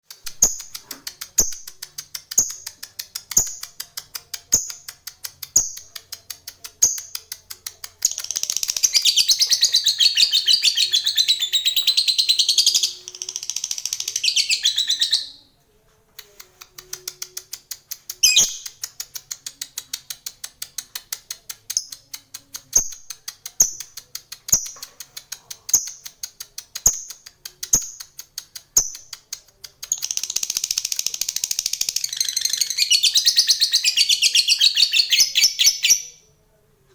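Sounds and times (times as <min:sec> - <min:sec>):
lovebird ticking chatter and trill: 0:00.2 - 0:15.4, 0:16.3 - 0:36.3.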